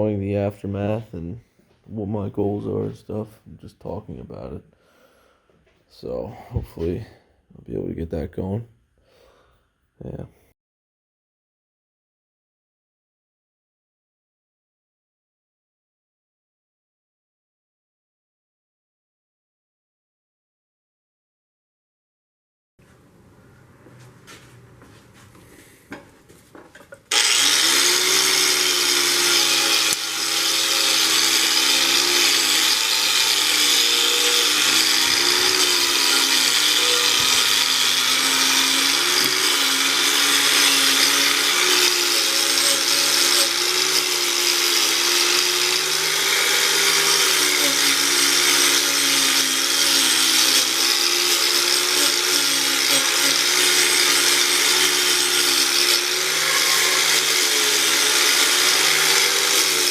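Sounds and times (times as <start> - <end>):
electric grinder on metal: 27.1 - 59.9.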